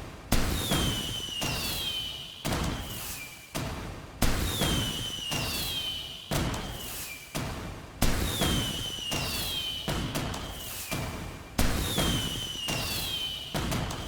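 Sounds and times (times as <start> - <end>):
fireworks whistles falling: 0.6 - 3.4, 4.4 - 7.3, 8.2 - 14.0.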